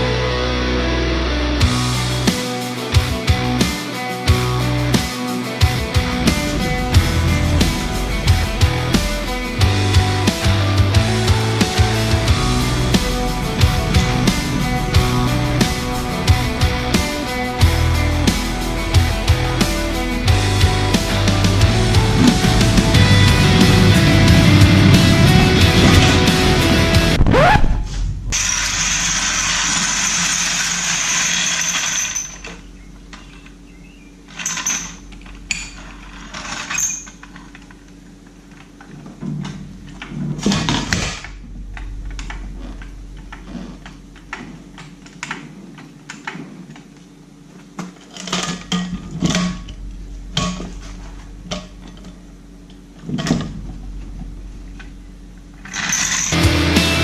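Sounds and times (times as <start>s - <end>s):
steady hiss: 2.0s - 27.2s
metallic knocks and clanks: 48.0s - 55.0s.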